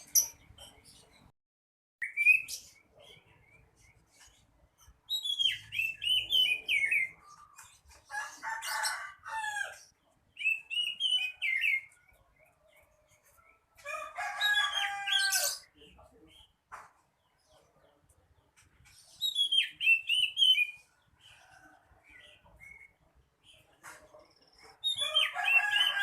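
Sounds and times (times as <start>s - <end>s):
bird singing whistled notes: 2.0s - 2.7s, 5.1s - 7.2s, 19.2s - 20.8s.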